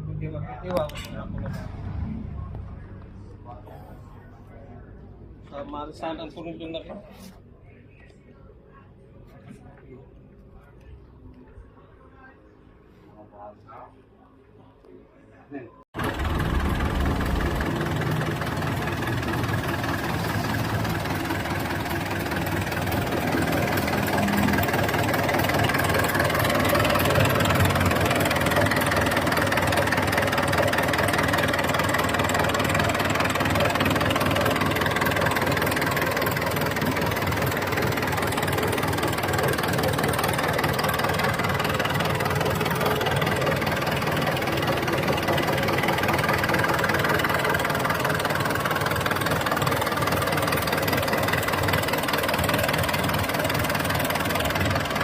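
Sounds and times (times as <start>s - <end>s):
diesel engine idling: 16.0s - 55.0s.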